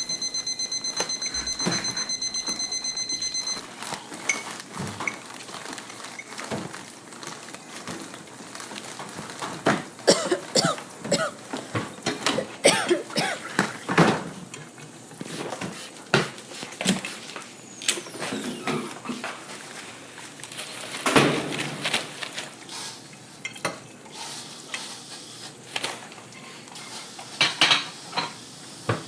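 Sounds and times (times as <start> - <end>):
alarm clock beeping: 0.0 - 3.6.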